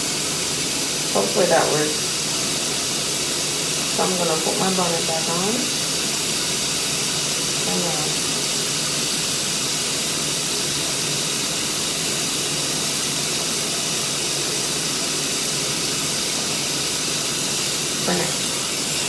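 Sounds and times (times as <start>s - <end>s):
tap water running: 0.0s - 19.0s.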